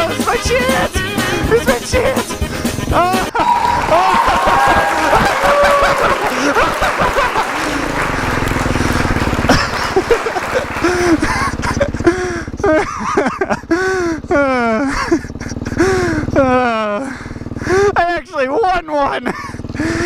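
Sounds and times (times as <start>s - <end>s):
dirt bike engines revving: 3.3s - 12.7s, 13.9s - 18.0s.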